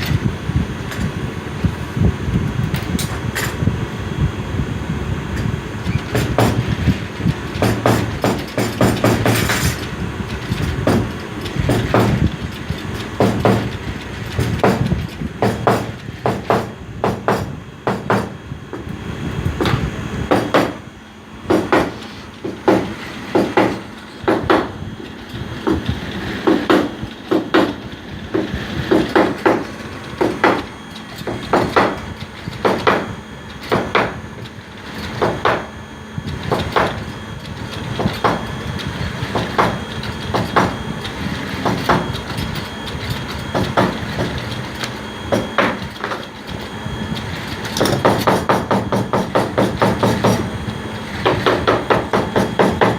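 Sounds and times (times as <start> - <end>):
sharp knocks: 14.6 - 18.4.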